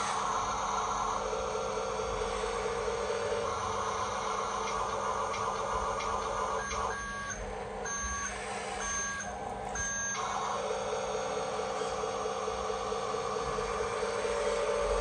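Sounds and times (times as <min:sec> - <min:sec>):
toy truck motor whining: 0:00.0 - 0:15.0
electronic reversing beeps: 0:05.6 - 0:10.6.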